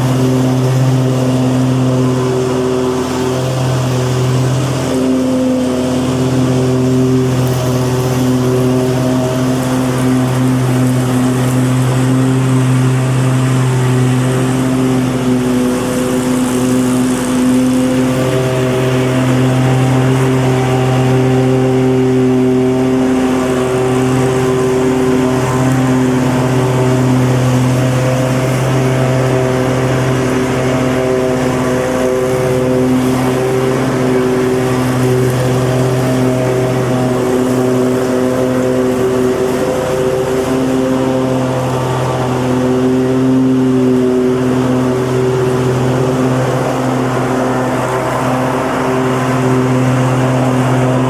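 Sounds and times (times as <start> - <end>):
lawn mower engine running: 0.0 - 51.0.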